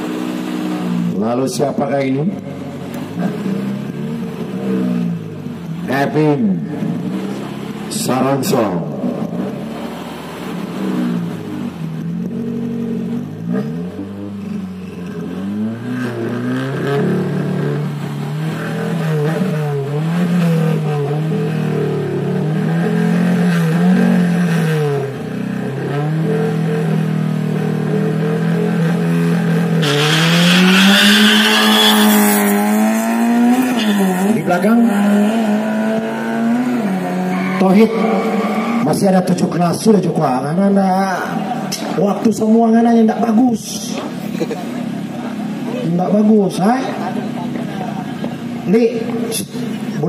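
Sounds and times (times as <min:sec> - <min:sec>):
car engine revving: 0:00.0 - 0:50.0.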